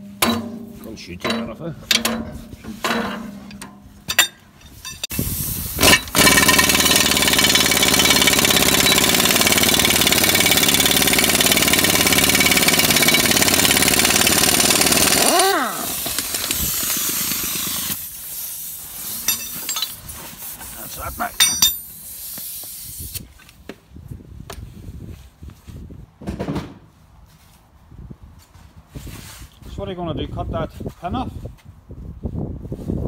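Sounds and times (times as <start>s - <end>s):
machine winding down whine: 5.8s - 14.1s.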